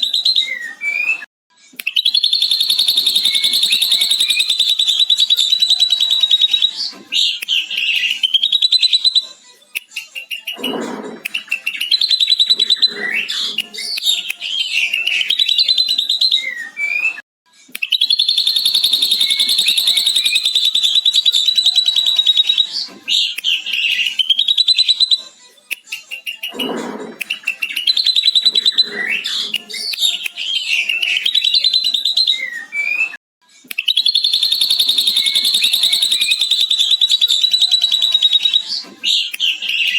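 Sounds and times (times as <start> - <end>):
bird whistled phrases: 0.0 - 9.3, 11.3 - 17.2, 17.8 - 25.3, 26.1 - 39.9
bird chattering trill: 2.1 - 6.8, 18.0 - 22.6, 33.9 - 38.6.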